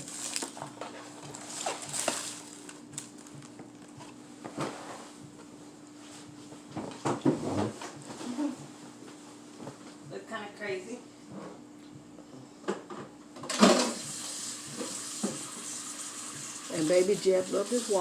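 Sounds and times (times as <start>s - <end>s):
chewing and crunching food: 0.0s - 4.0s.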